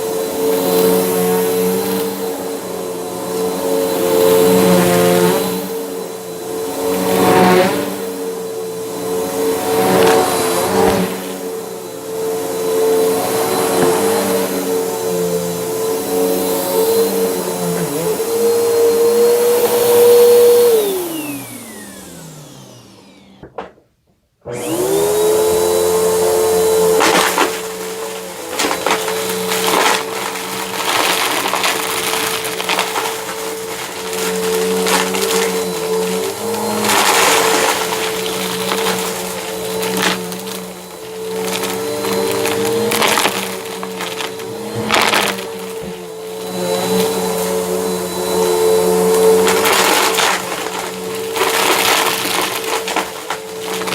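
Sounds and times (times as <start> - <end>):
vacuum brushroll crackling: 0.0 - 23.5, 24.7 - 53.9
vacuum cleaner motor whine: 0.0 - 23.8, 24.4 - 53.9.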